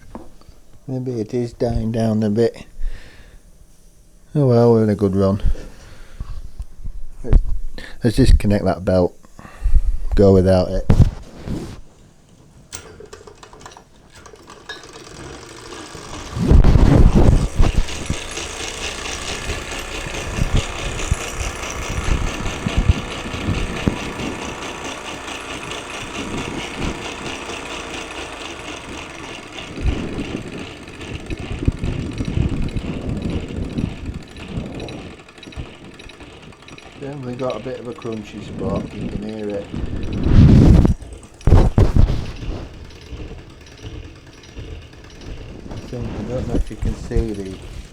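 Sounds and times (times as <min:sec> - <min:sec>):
toy steam engine gears clattering: 0:10.3 - 0:47.9.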